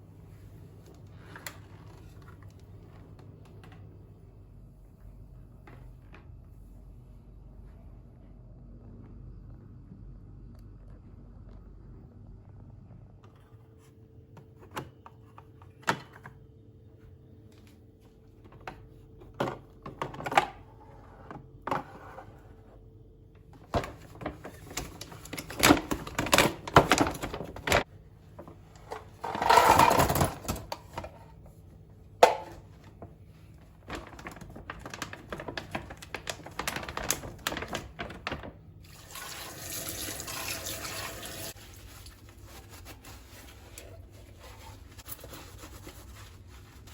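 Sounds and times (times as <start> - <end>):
water running from a tap: 38.8 - 41.6.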